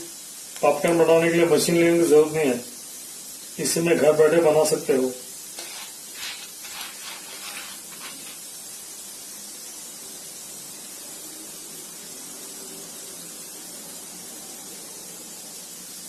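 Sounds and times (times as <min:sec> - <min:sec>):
oil sizzling in a pan: 0:00.0 - 0:16.0
stirring scrapes in a pan: 0:05.5 - 0:08.5.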